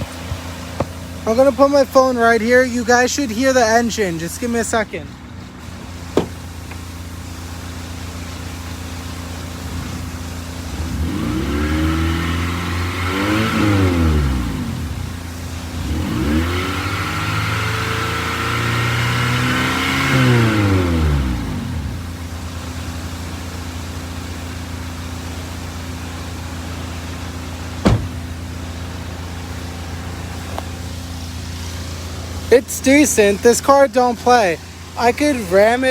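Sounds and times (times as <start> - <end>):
car engine idling and revving: 0.0 - 35.9.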